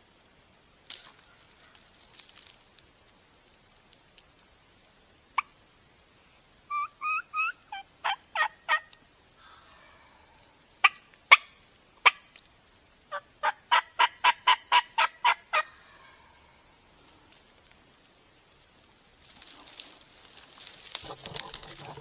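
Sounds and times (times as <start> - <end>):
turkey yelping: 6.7 - 8.9, 13.1 - 16.5, 21.0 - 22.0
turkey clucking: 6.7 - 9.0, 13.1 - 16.2, 21.0 - 22.0.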